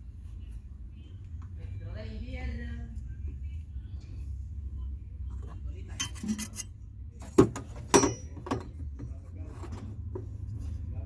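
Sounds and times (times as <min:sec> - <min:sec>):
steady low hum: 0:00.0 - 0:11.0
parts scraping and rubbing: 0:05.3 - 0:08.4.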